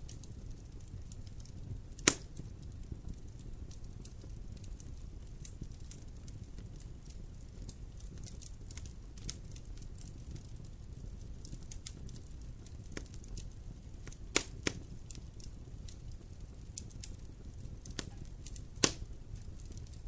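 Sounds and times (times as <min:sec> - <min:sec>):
low rumble of fire: 0:00.0 - 0:20.0
wood fire crackling: 0:00.0 - 0:20.0
loud pop from fire: 0:01.9 - 0:02.6, 0:14.0 - 0:15.2, 0:17.8 - 0:19.9.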